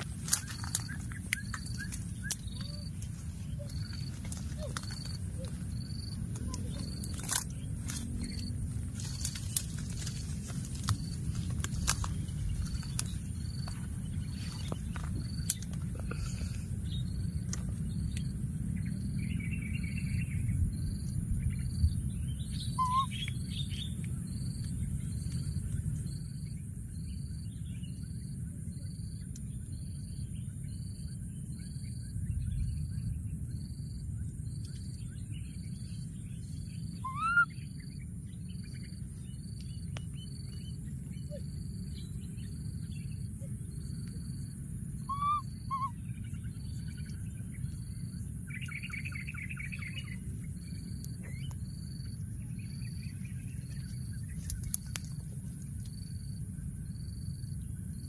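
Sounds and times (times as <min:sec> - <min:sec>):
low rumble: 0:00.0 - 0:57.8
bird trill: 0:22.3 - 0:24.0, 0:36.6 - 0:39.0, 0:45.0 - 0:47.8
rising bird chirps: 0:22.3 - 0:24.0, 0:35.8 - 0:39.1, 0:39.7 - 0:47.8
bird pipping: 0:22.8 - 0:23.3, 0:37.0 - 0:37.5, 0:45.0 - 0:45.9.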